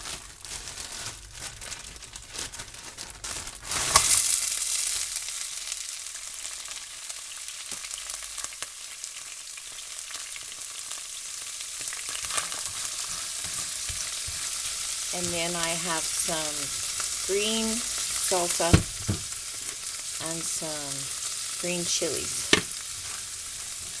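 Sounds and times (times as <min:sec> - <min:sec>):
peppers sizzling in a skillet: 0:00.0 - 0:24.0.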